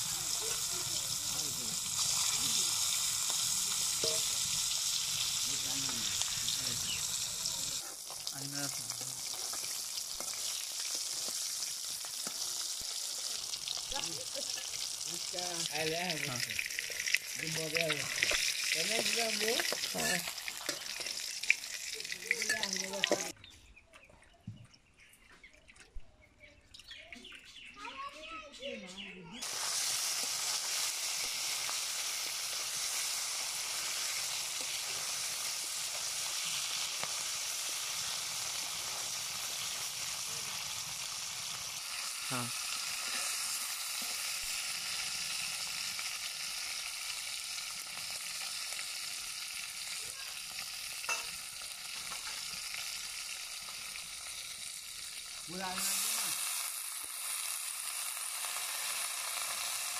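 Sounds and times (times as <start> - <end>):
fish sizzling in hot oil: 0.0 - 23.4, 29.4 - 59.9
metal spatula scraping wok: 3.8 - 4.5, 43.0 - 44.2, 51.1 - 51.4.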